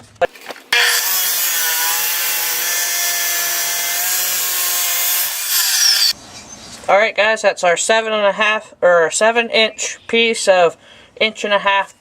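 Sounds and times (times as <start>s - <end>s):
chop saw cutting steel: 0.7s - 6.2s.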